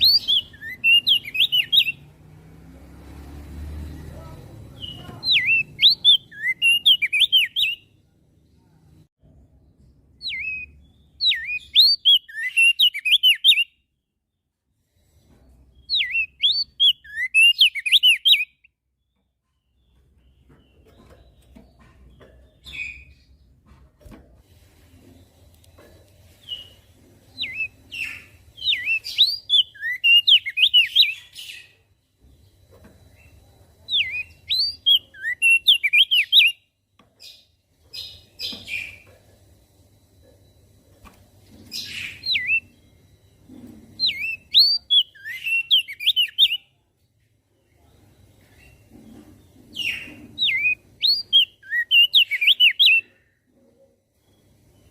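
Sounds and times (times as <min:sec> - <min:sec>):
bird singing whistled notes: 0:00.0 - 0:02.1, 0:04.7 - 0:07.9, 0:10.2 - 0:13.8, 0:15.8 - 0:18.8, 0:27.4 - 0:31.8, 0:33.2 - 0:36.7, 0:41.7 - 0:42.9, 0:44.0 - 0:46.8, 0:49.8 - 0:53.1.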